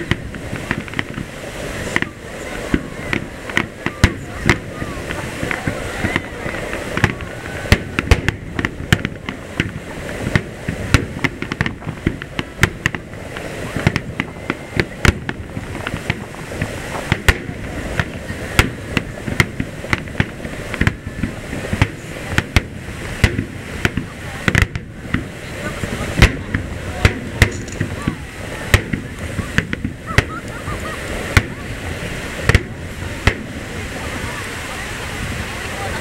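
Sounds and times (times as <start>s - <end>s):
firework shells bursting: 0.0s - 33.7s.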